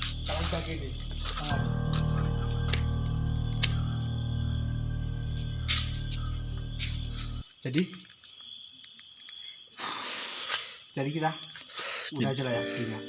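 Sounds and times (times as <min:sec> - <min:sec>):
low steady hum: 0:00.0 - 0:07.4
crickets chirping: 0:00.0 - 0:13.0.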